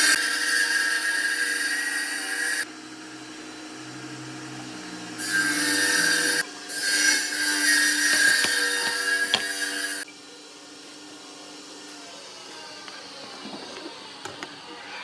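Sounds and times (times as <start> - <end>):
power tool motor whine: 0.0 - 15.0
hiss of tool cutting wood: 5.2 - 13.0
small knocks: 8.0 - 9.7.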